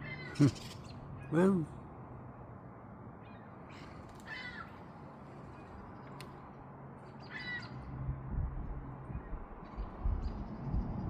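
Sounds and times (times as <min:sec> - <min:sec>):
bird calls: 0:00.0 - 0:01.6, 0:07.0 - 0:07.9.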